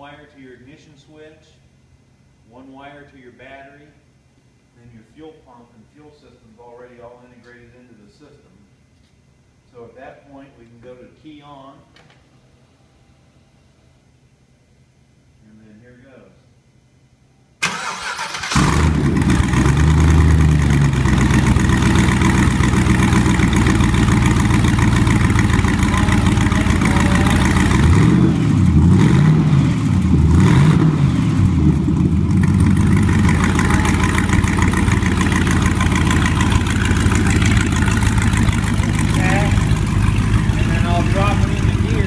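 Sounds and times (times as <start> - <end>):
starter motor cranking: 17.6 - 20.4
car engine idling: 17.6 - 42.0
car engine revving: 17.8 - 42.0.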